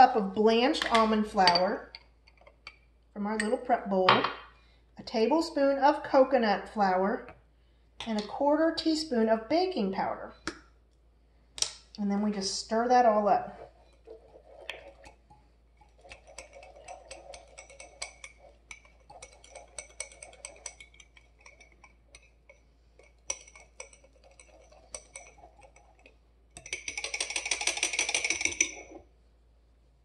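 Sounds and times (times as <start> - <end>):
utensil scraping ceramic: 13.3 - 29.0.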